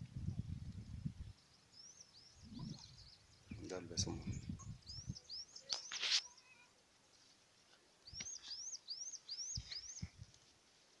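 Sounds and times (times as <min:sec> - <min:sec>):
bird chirping: 0:01.2 - 0:06.7, 0:08.0 - 0:10.2.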